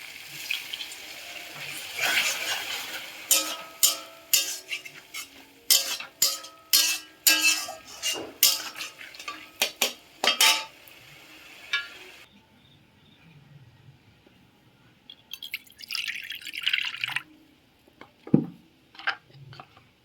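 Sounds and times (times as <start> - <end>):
metal utensils clanking on cookware: 1.5 - 10.9, 11.6 - 12.3.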